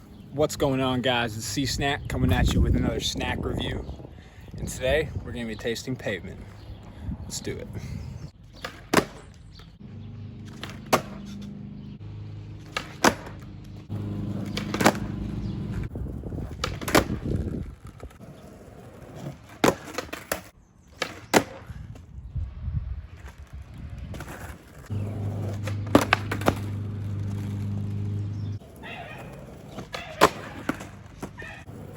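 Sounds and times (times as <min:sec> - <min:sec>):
skateboard wheels rolling: 0:08.4 - 0:11.9, 0:12.5 - 0:22.2, 0:22.8 - 0:31.9
skateboard clacking: 0:08.5 - 0:09.6, 0:10.4 - 0:11.5, 0:12.6 - 0:21.6, 0:24.1 - 0:31.9.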